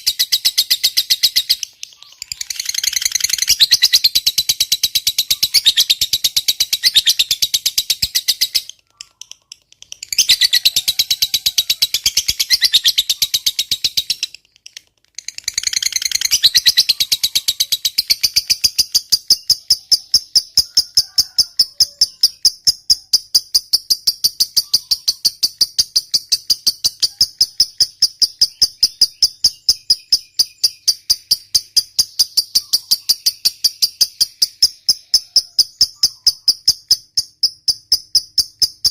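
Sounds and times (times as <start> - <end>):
bird shrill chattering: 0.0 - 14.3, 15.2 - 38.9.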